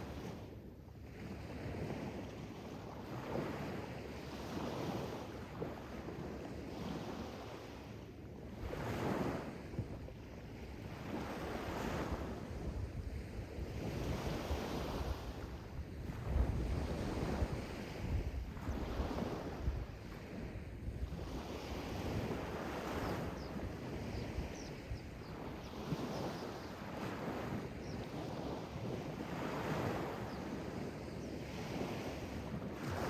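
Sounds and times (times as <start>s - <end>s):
wind buffeting microphone: 10.8s - 33.0s.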